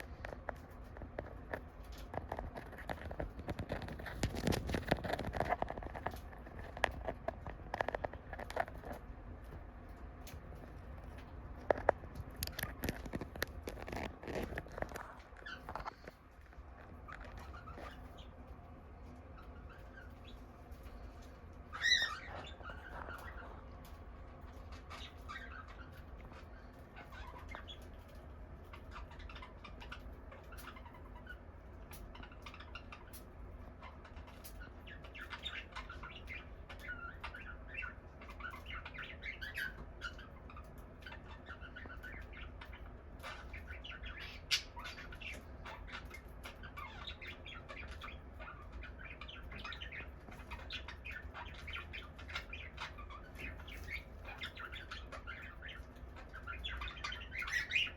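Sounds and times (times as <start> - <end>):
cockatiels chirping: 0.0 - 9.6, 10.2 - 57.9.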